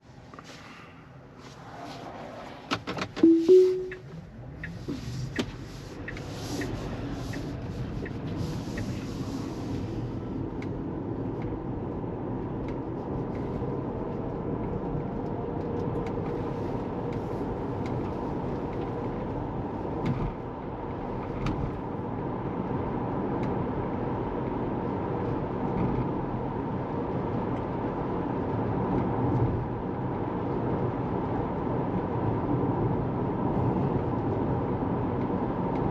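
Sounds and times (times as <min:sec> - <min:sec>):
road and tyre noise: 0:00.0 - 0:35.9
two-note chime: 0:03.2 - 0:04.0.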